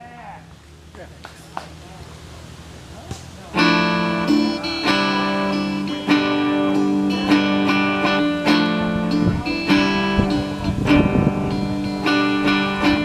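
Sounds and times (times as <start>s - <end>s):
guitar chords strummed: 3.5s - 13.0s.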